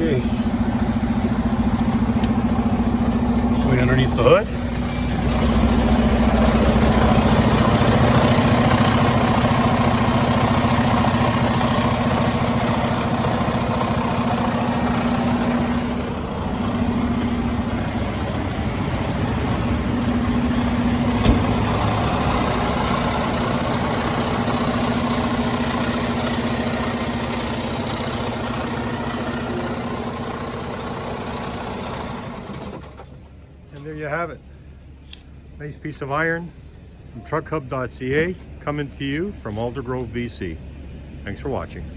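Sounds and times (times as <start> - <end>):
diesel engine idling: 0.0 - 41.4.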